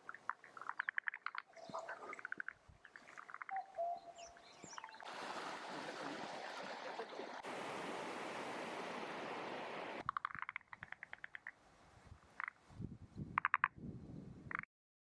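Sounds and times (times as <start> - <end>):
bird calls: 0.0 - 5.1
stream water rushing: 5.0 - 10.0.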